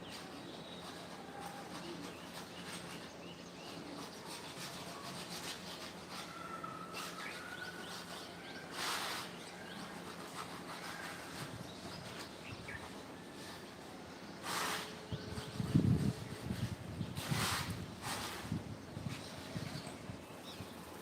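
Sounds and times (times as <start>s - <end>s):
birds chirping and whistling: 2.0s - 13.5s.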